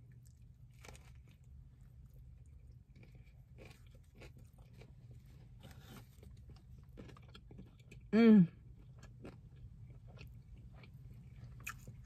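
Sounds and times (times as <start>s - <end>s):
crispy breading crunching: 0.0s - 8.1s
chewing fried chicken burger: 0.0s - 12.0s.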